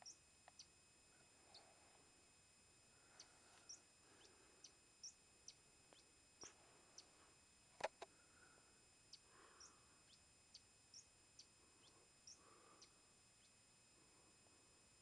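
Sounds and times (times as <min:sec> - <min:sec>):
small bird chirping: 0:00.0 - 0:00.8, 0:03.0 - 0:08.1, 0:09.1 - 0:13.6.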